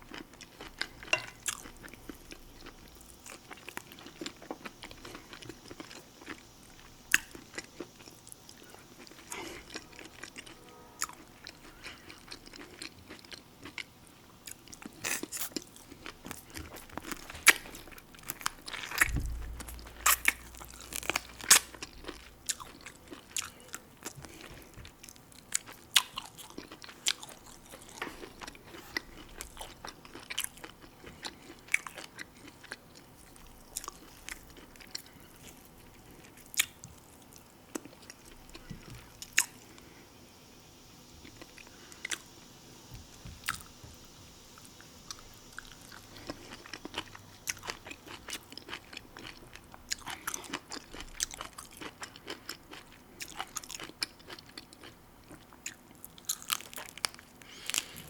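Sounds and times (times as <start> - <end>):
person chewing crunchy food: 0.0 - 39.9, 43.4 - 43.8, 44.5 - 58.0
low thud: 19.0 - 21.0.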